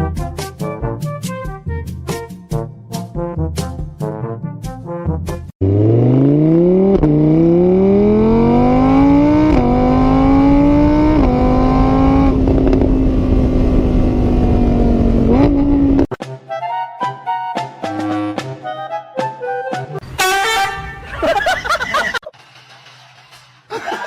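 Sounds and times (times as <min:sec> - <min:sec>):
car engine accelerating through gears: 0:05.6 - 0:16.1.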